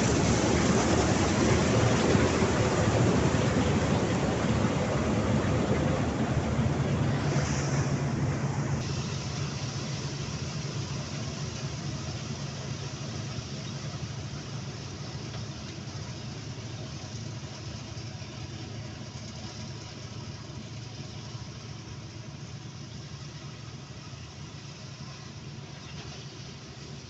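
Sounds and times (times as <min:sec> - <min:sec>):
mechanical rush: 0:00.0 - 0:11.1
diesel engine running: 0:00.0 - 0:27.0.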